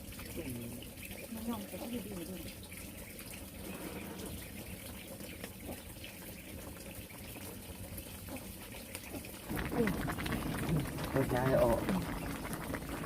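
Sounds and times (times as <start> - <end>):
running water rushing: 7.8 - 13.0.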